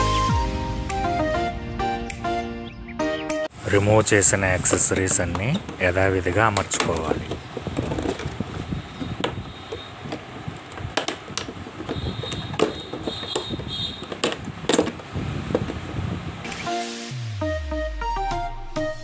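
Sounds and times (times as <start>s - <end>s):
plastic shelves clicking and knocking: 4.7s - 15.8s
plastic rubbing squeak: 6.9s - 15.0s.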